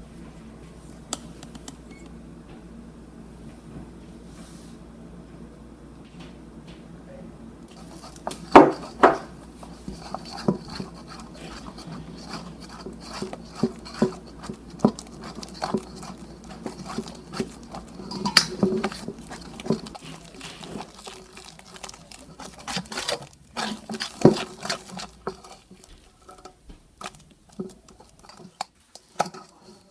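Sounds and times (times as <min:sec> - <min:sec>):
utensil knocking against bowl: 0:08.2 - 0:20.0.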